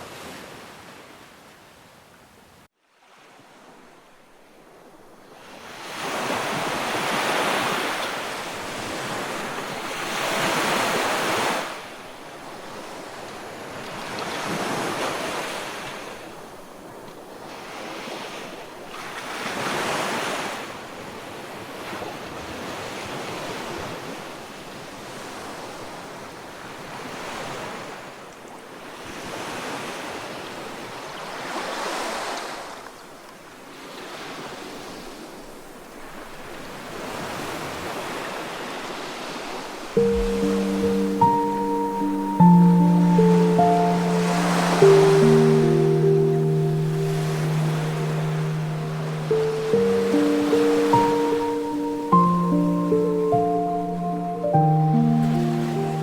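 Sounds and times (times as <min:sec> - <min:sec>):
ocean waves washing in: 0:37.9 - 0:56.0.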